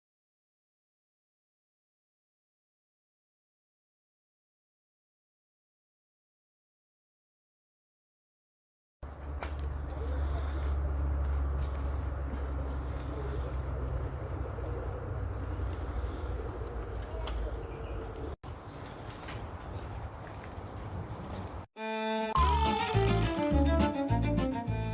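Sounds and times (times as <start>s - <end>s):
insects droning: 9.1s - 21.7s.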